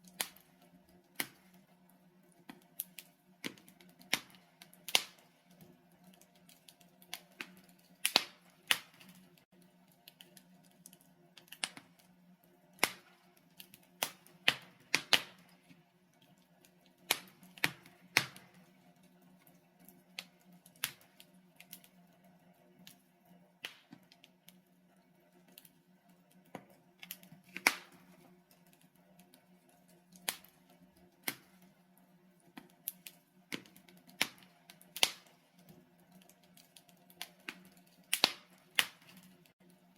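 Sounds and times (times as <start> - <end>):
logs crackling and popping: 0.0 - 39.9.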